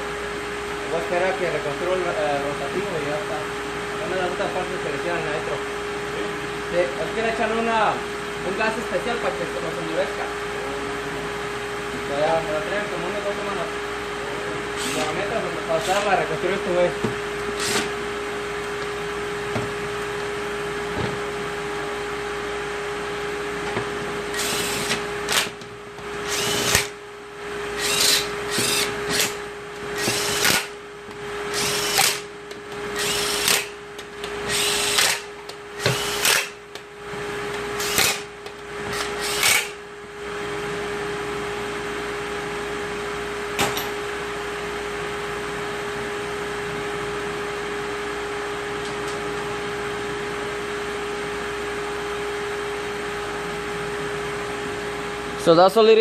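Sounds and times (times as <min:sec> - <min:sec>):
steady hum: 0:00.0 - 0:56.0
power tool short bursts: 0:34.5 - 0:36.6, 0:39.0 - 0:39.8.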